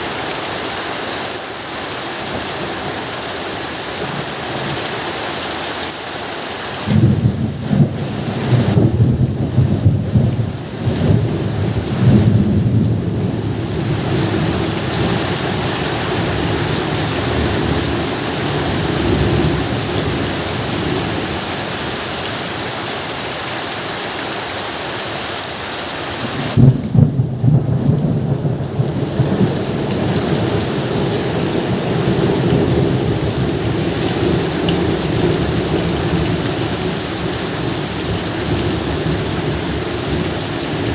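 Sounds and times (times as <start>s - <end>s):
heavy rain hissing: 0.0s - 40.9s
thunder rumbling: 6.9s - 21.4s, 26.3s - 40.9s.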